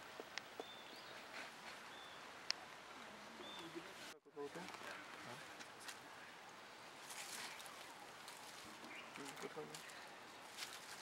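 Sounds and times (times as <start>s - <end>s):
bird chirps: 0.6s - 2.3s.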